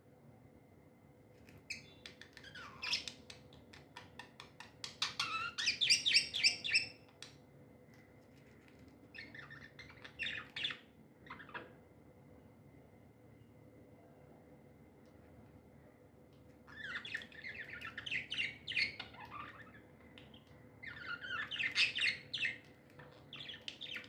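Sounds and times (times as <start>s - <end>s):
budgerigars chirping: 4.9s - 7.0s, 9.2s - 11.7s, 16.7s - 24.0s.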